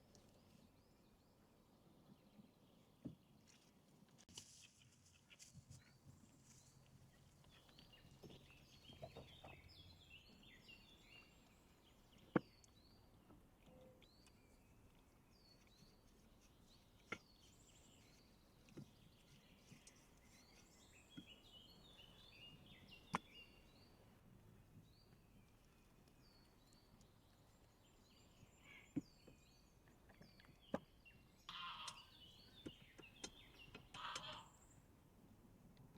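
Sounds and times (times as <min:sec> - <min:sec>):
bird chirping: 0:05.8 - 0:24.2, 0:24.8 - 0:34.9.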